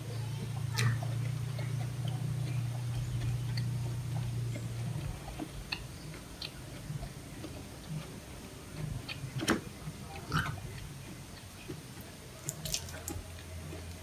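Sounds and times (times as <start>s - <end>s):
steady low hum: 0.0s - 14.0s
person chewing with wet clicks: 0.4s - 14.0s.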